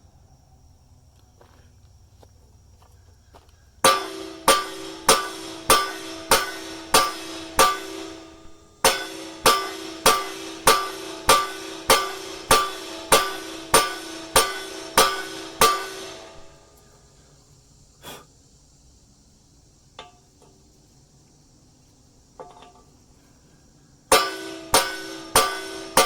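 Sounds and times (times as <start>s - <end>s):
hammer striking steel: 3.8s - 16.8s, 24.1s - 26.0s.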